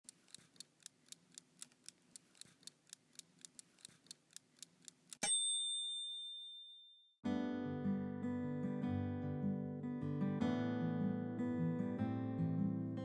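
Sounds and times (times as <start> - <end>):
clock ticking: 0.0 - 5.4
bell ding: 5.2 - 7.1.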